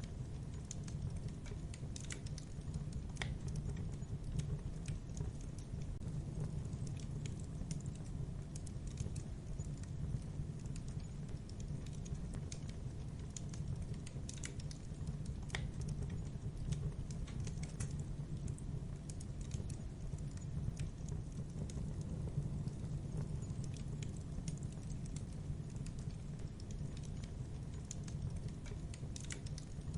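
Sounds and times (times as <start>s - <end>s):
fire crackling: 0.0s - 29.9s.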